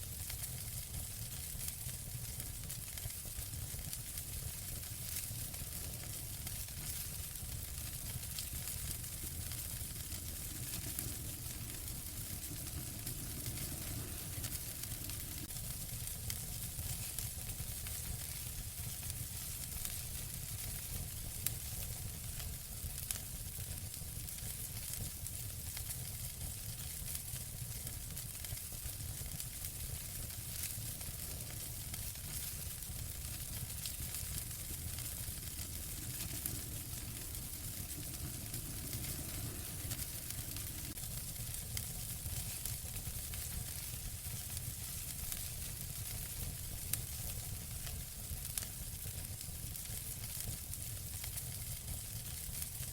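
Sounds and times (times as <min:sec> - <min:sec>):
fire crackling in fireplace: 0:00.0 - 0:52.9.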